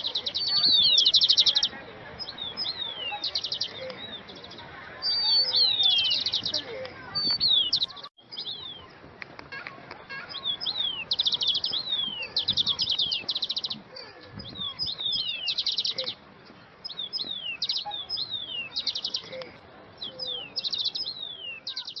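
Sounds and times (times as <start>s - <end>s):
songbirds trilling: 0.0s - 22.0s
bird whistles: 5.0s - 6.6s.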